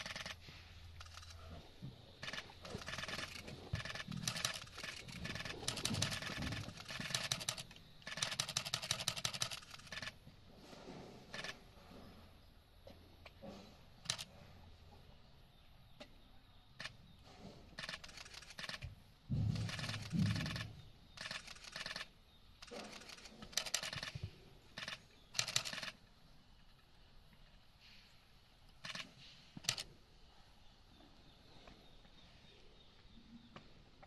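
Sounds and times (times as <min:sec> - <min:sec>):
heavy low thud: 0:19.3 - 0:20.5.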